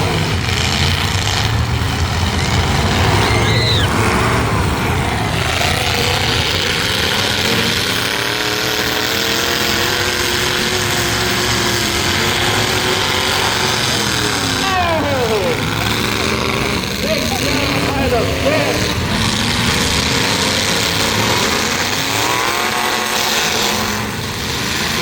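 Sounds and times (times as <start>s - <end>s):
truck engines revving: 0.0s - 25.0s.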